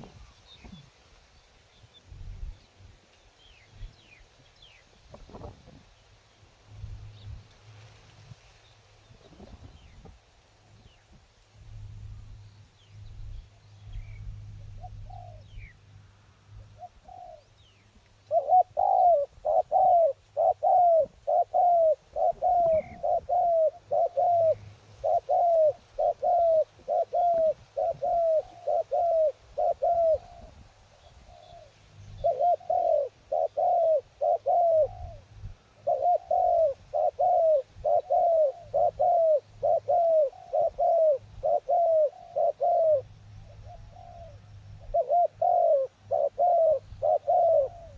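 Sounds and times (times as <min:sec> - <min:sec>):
low wind rumble: 0:01.9 - 0:03.0, 0:09.0 - 0:17.9
dove cooing: 0:14.5 - 0:15.7, 0:16.6 - 0:17.5, 0:18.2 - 0:47.9.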